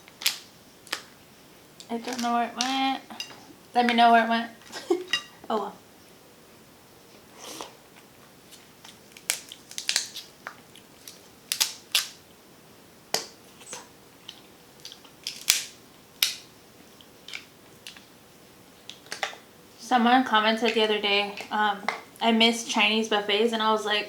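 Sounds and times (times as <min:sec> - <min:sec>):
crab shell cracking by hand: 0:00.1 - 0:01.2, 0:08.8 - 0:12.2, 0:14.3 - 0:16.5.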